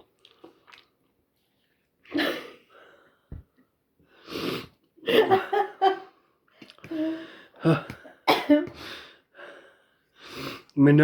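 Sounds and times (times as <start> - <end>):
forceful burst of breath: 4.1 - 4.8.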